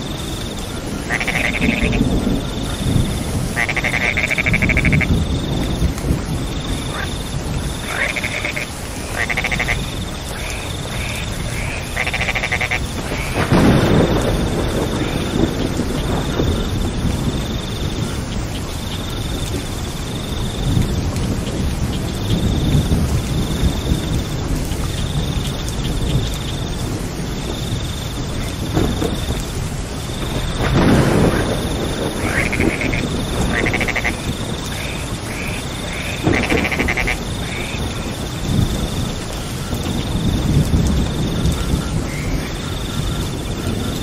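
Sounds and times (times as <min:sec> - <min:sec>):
frogs croaking: 0:00.0 - 0:44.0
steady rain: 0:00.0 - 0:44.0
thunder rumbling: 0:00.0 - 0:44.0.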